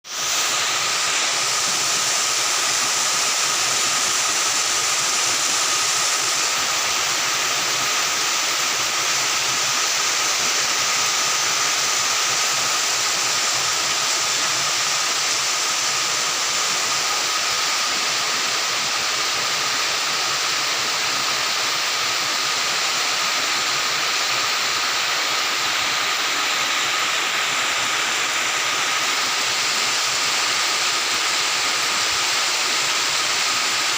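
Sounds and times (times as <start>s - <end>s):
steady rain in forest: 0.0s - 33.9s.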